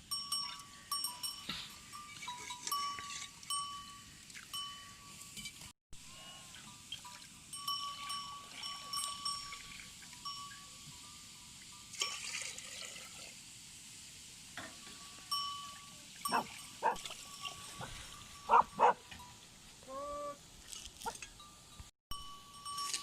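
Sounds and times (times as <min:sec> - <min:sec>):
chime-like ringing: 0:07.5 - 0:11.9, 0:21.3 - 0:23.0.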